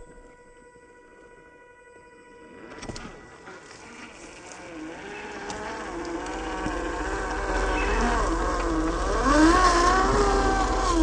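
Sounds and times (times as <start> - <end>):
electric motor and gearbox whining: 2.5 - 11.0.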